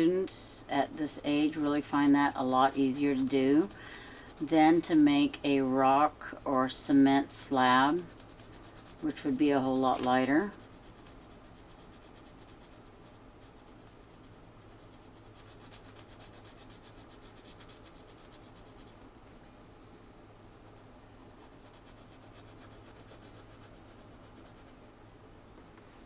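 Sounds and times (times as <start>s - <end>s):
pencil scratching on paper: 0.9s - 19.0s, 20.5s - 24.8s.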